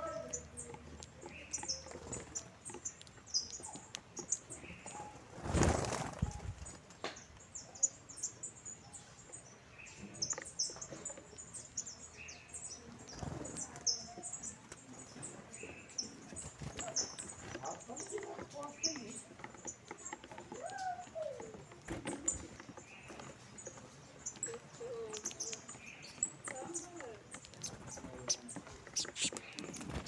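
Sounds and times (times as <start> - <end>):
finches chirping: 0.0 - 5.2, 6.2 - 30.0.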